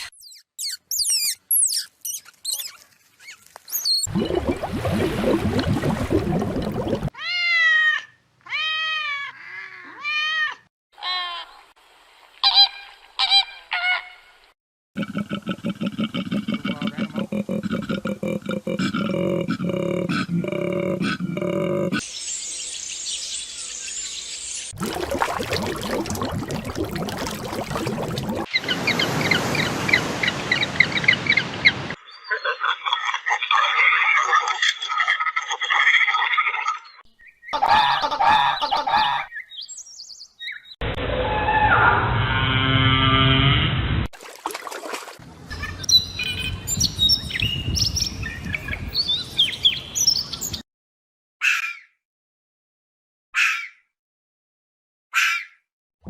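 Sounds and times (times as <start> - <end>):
short high bird chirps: 0.1 - 4.1.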